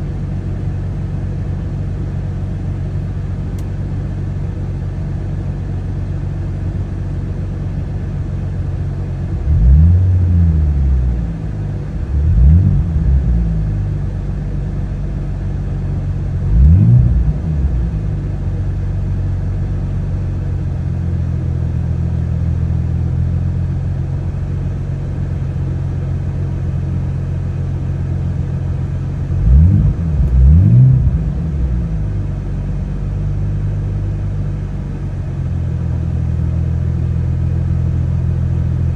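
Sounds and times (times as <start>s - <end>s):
car engine idling: 0.0s - 38.9s
engine revving: 9.3s - 11.2s, 11.8s - 13.6s, 16.4s - 18.2s, 29.3s - 35.1s.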